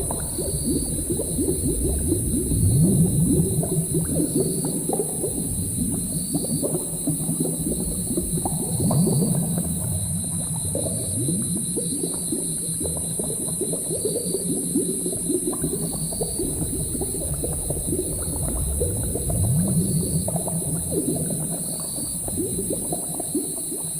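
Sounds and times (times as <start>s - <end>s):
low hum: 0.0s - 4.0s
thick liquid bubbling and gurgling: 0.0s - 23.9s.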